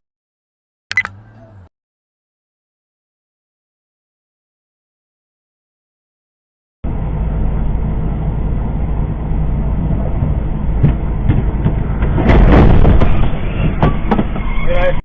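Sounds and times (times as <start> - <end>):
sharp clicks: 0.9 - 1.2
engine and road rumble: 0.9 - 1.7, 6.8 - 15.0
loud bang: 10.8 - 14.4.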